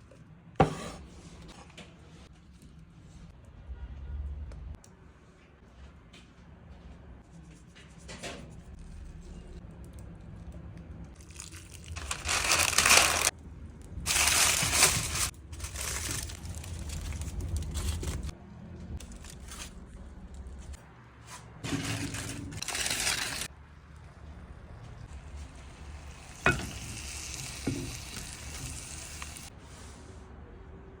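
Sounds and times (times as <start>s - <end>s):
casserole sizzling: 21.7s - 23.5s, 25.4s - 29.5s.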